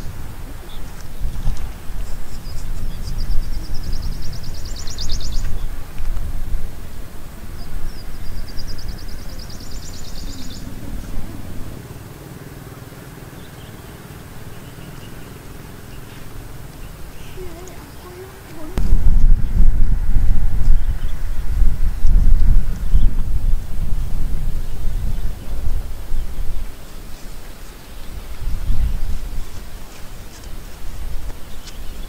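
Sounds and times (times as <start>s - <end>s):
low rumble of outdoor noise: 0.0s - 32.0s
small bird rapid high trill: 7.9s - 12.1s.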